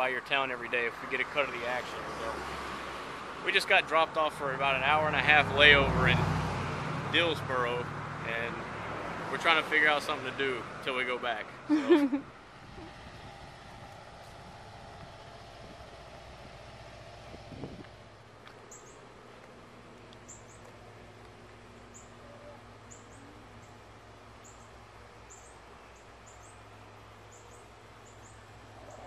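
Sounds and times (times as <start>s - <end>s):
steady low hum: 11.8s - 29.0s
small bird chirping: 18.6s - 19.1s, 20.2s - 20.8s, 24.4s - 26.7s, 27.3s - 29.0s.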